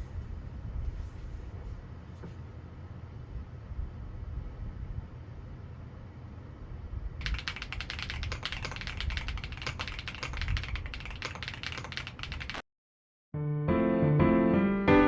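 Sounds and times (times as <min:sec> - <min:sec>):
typing on computer keyboard: 0:07.2 - 0:12.6.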